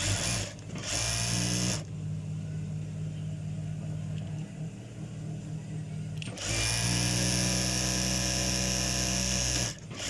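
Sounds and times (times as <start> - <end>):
sewing machine stitching: 0.0 - 1.8, 6.3 - 10.0
sewing machine motor humming: 0.0 - 1.9, 6.2 - 10.0.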